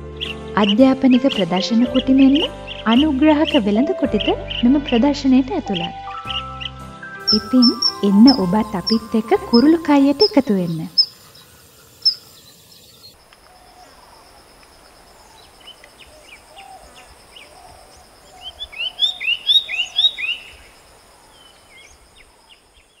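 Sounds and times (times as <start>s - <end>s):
bird chirps: 5.7s - 23.0s.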